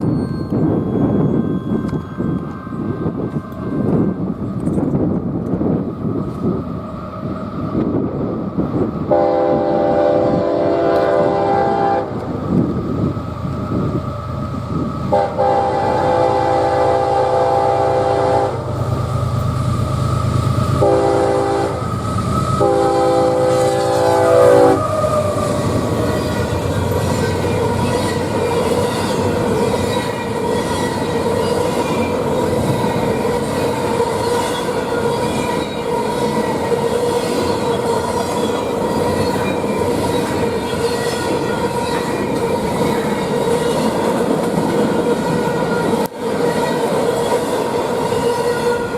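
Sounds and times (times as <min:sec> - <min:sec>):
train wheels rumbling on rails: 0:00.0 - 0:48.9
locomotive chord horn blasts: 0:09.1 - 0:12.2, 0:15.1 - 0:18.8, 0:20.8 - 0:25.6, 0:48.1 - 0:48.9.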